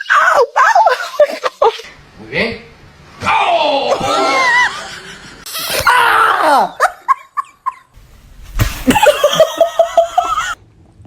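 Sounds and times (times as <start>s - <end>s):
people laughing and shrieking: 0.0s - 1.8s, 3.3s - 7.4s, 8.9s - 10.6s.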